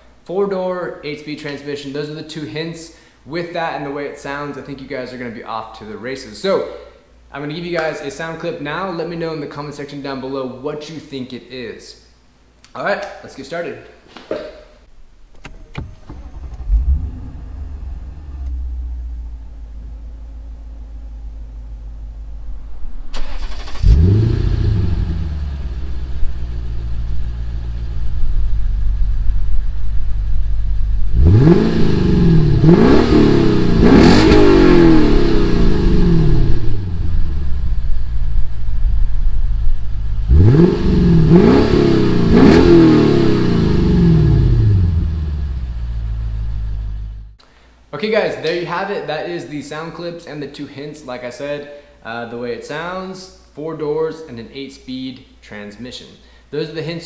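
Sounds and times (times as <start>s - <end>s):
car engine revving in blips: 15.3s - 20.5s, 23.1s - 27.8s, 30.8s - 37.8s, 40.0s - 47.3s
car engine idling and accelerating: 15.8s - 23.1s, 23.8s - 47.4s.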